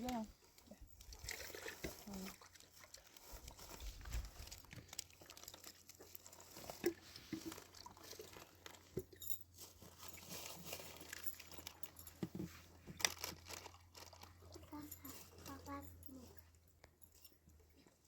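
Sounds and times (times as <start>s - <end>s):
small clicks and crackles: 0.0s - 18.0s
plastic packets crinkling: 2.8s - 8.9s, 13.0s - 14.6s.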